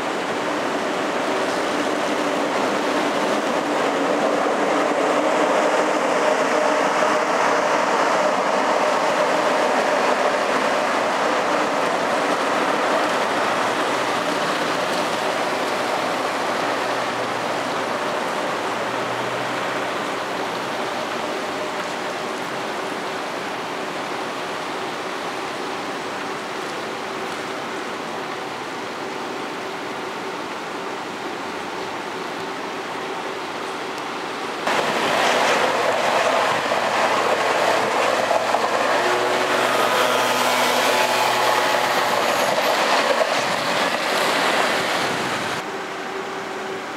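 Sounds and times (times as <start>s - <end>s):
high-speed train passing: 0.0s - 46.9s.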